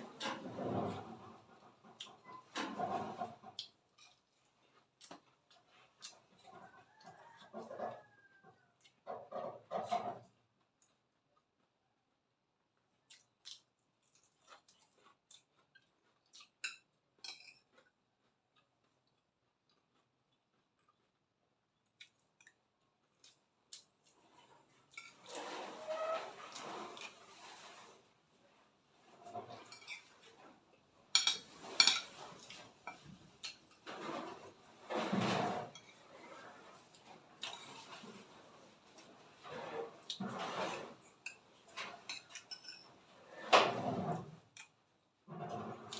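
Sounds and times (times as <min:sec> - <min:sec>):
cutlery clinking on plate: 0:16.6 - 0:17.7, 0:31.1 - 0:33.6, 0:42.1 - 0:42.9.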